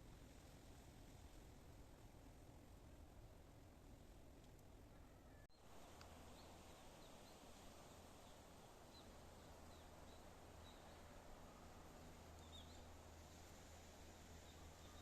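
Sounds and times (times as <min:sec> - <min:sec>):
faint high bird chirps: 0:04.9 - 0:05.6, 0:14.4 - 0:15.0.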